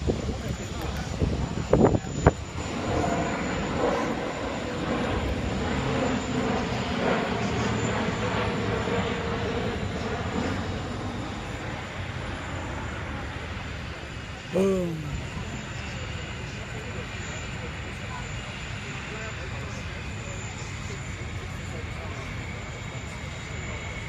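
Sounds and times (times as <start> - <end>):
aircraft engines passing overhead: 0.0 - 24.0.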